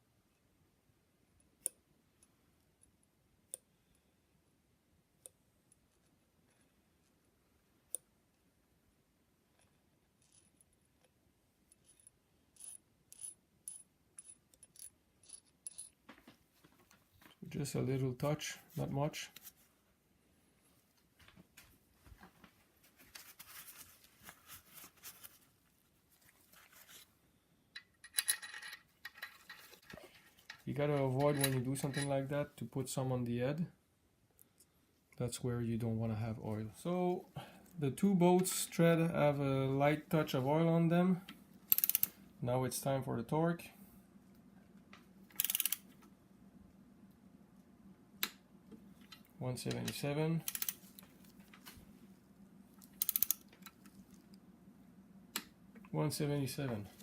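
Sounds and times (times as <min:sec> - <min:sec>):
steel parts clinking and scraping: 0:27.8 - 0:32.2.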